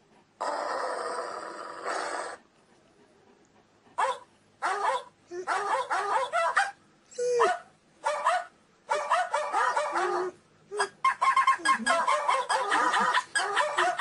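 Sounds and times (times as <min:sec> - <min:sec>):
dog whining and yipping: 0:04.8 - 0:07.6.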